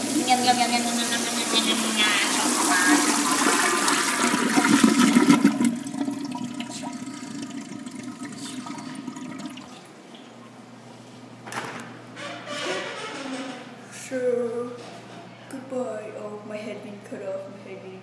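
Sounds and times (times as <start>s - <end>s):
water hissing: 0.0s - 5.4s
toilet flushing: 0.0s - 10.3s.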